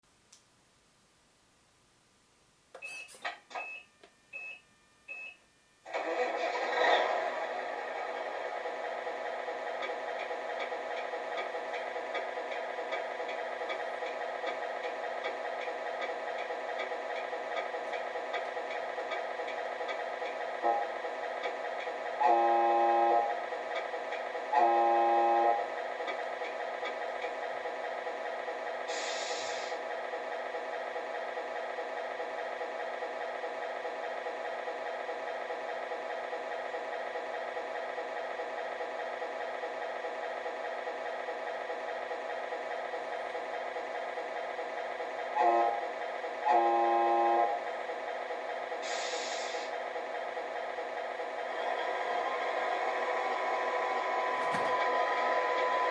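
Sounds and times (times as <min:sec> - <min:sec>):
truck horn blasts: 0:22.2 - 0:23.3, 0:24.5 - 0:25.6, 0:45.4 - 0:45.8, 0:46.4 - 0:47.6
simulated diesel engine idle: 0:25.8 - 0:45.3, 0:47.8 - 0:52.0
short hiss: 0:28.9 - 0:29.8, 0:48.8 - 0:49.7.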